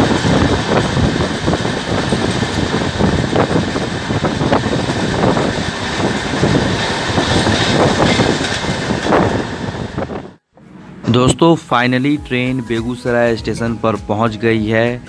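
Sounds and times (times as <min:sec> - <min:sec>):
wind rushing: 0:00.0 - 0:10.4
wheels clicking over rails: 0:00.0 - 0:10.7
train rumble: 0:00.0 - 0:15.0.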